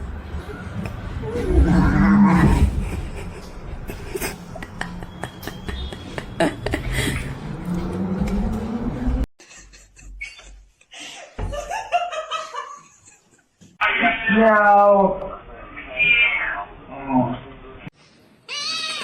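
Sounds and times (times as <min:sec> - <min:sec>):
person laughing: 0:02.4 - 0:07.4.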